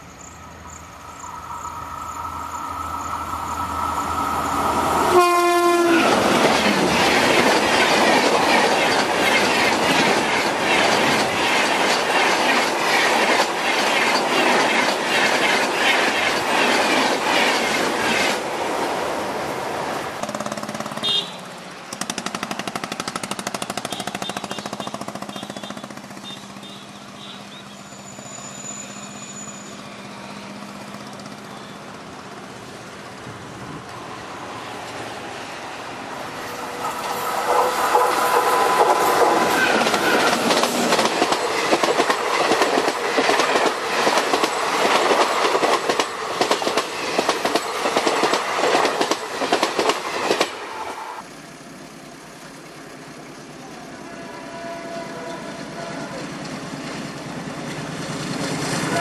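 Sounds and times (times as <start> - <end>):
train rushing past: 0.0 - 59.0
train wheels clacking over bridge: 3.0 - 19.0, 20.0 - 51.0
train horn: 5.0 - 6.2, 21.0 - 21.5, 23.8 - 27.6, 53.9 - 56.3, 58.8 - 59.0
train wheels clattering over rail joints: 5.9 - 18.5, 20.2 - 21.0, 21.9 - 26.4, 36.8 - 50.7.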